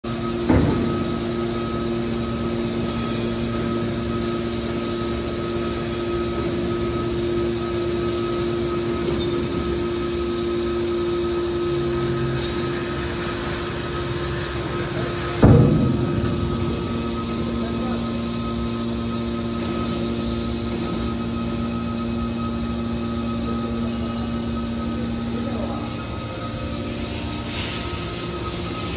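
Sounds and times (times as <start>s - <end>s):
machinery humming: 0.0s - 28.9s
constant tones: 0.1s - 28.9s
noisy rumble: 15.3s - 19.5s.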